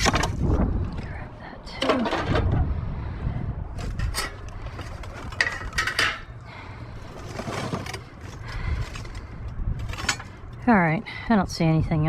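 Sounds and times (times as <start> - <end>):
low rumble: 0.0 - 12.0
scrap knocking and scraping: 3.8 - 6.4, 7.0 - 10.4.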